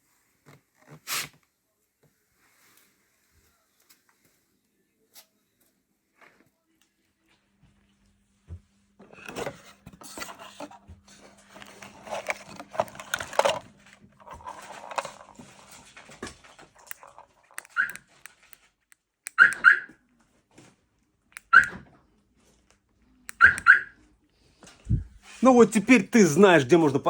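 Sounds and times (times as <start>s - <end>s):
dog barking: 19.4s - 19.9s.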